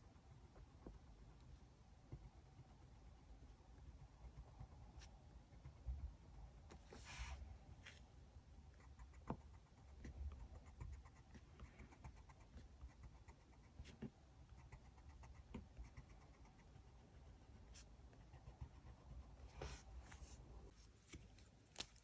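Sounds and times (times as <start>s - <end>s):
paper rustling: 20.1s - 22.0s.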